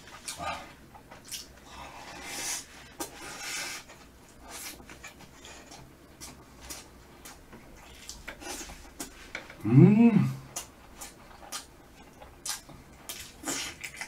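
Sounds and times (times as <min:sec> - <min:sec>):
person chewing and smacking: 0:00.0 - 0:09.6, 0:10.4 - 0:14.0.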